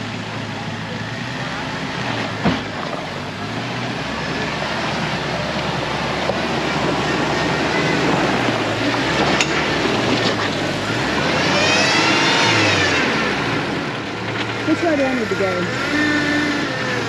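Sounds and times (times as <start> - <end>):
off-road engine revving: 0.0 - 17.0.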